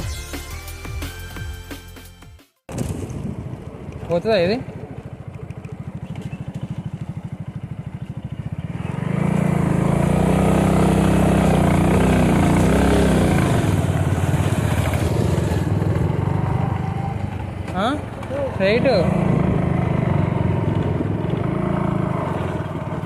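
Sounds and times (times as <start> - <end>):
small motorcycle engine revving: 5.1 - 23.0.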